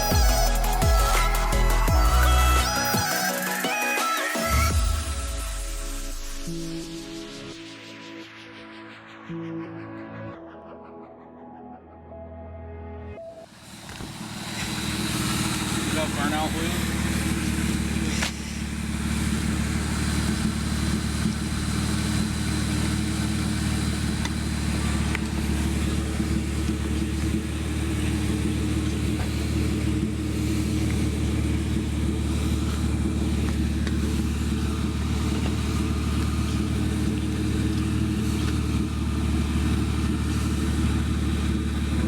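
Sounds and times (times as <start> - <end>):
car engine running steadily: 0.0 - 3.2, 13.5 - 42.0.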